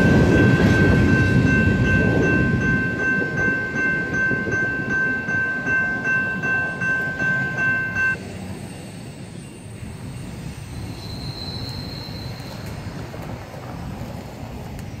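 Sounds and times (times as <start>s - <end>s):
freight train cars rumbling: 0.0s - 15.0s
faint high wheel squeal: 8.4s - 12.8s.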